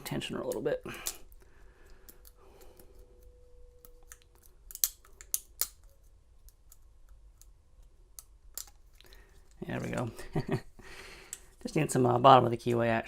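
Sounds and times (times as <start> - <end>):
lock pick clicking in padlock: 3.2 - 6.8.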